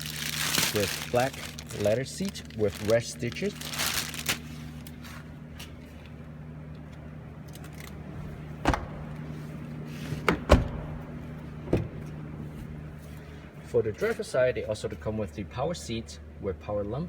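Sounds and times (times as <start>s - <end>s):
steady low hum: 0.0s - 17.0s
car door knocks: 8.6s - 9.4s, 10.2s - 12.1s.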